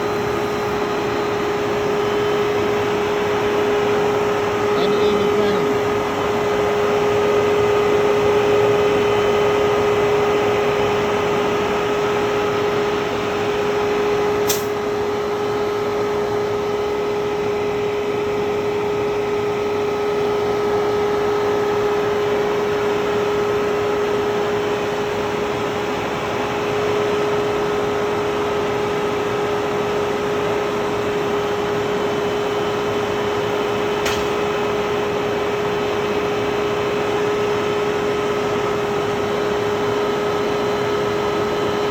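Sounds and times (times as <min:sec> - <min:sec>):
air conditioner whirring: 0:00.0 - 0:41.9.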